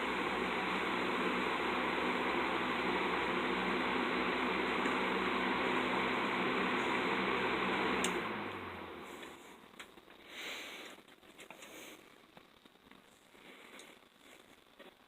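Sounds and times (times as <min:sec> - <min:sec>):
box fan running: 0:00.0 - 0:10.0
small clicks and rustles: 0:10.8 - 0:15.0.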